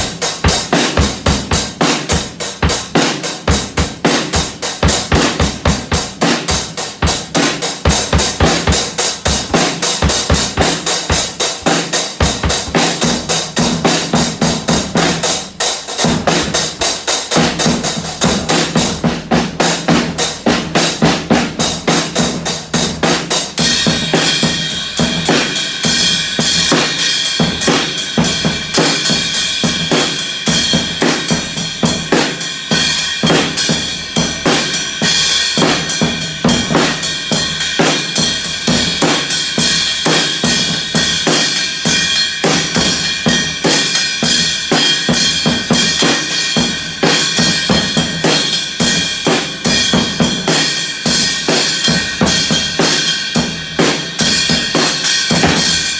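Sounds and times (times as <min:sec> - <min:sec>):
bass drum: 0:16.0 - 0:55.9
cymbal ringing: 0:41.3 - 0:48.5.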